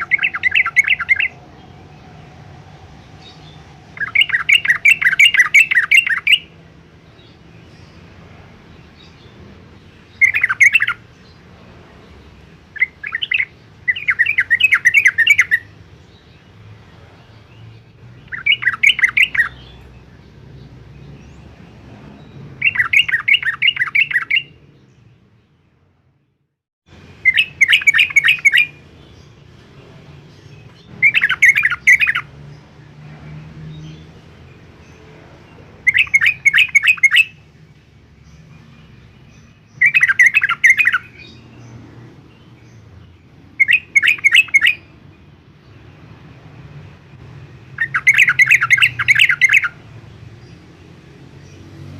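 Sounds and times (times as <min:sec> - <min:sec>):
bulbul singing: 0:00.0 - 0:25.7, 0:26.9 - 0:51.9.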